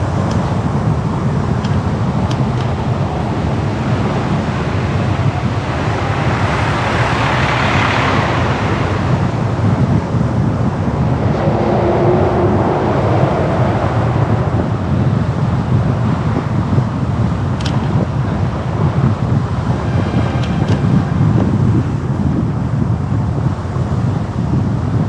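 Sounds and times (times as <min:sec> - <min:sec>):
car road and wind noise: 0:00.0 - 0:25.0.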